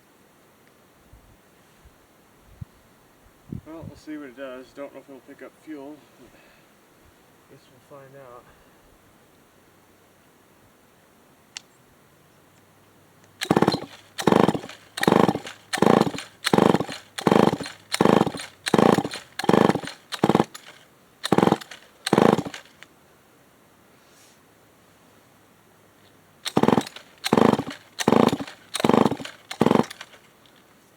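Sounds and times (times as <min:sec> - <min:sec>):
chainsaw engine turning over: 0:13.3 - 0:22.8, 0:26.4 - 0:30.6
chainsaw starter cord pulls: 0:13.3 - 0:22.8, 0:26.4 - 0:30.7.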